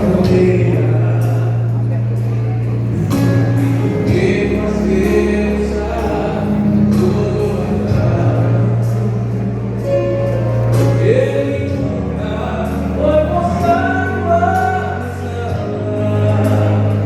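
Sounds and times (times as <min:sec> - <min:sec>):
gospel group singing: 0:00.0 - 0:17.0
sustained bass notes: 0:00.0 - 0:17.0.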